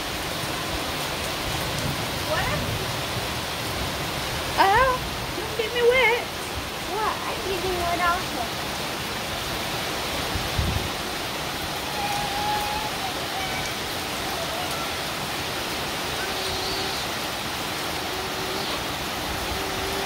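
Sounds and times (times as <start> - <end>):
heavy rain on concrete and foliage: 0.0 - 20.0.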